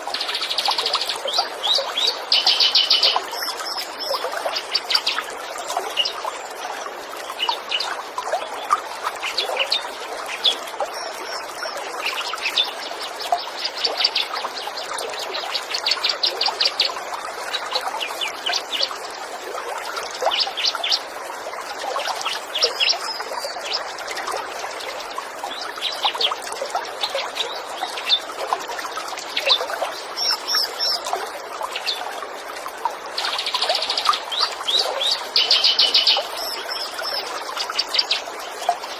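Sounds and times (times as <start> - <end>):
trickling water: 0.0 - 38.9
songbirds chirping: 33.2 - 38.9.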